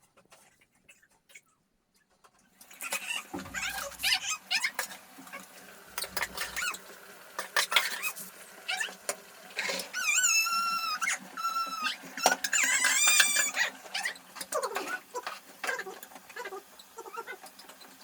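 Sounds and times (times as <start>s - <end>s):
high-pitched animal cries: 2.8s - 4.8s, 9.6s - 15.2s.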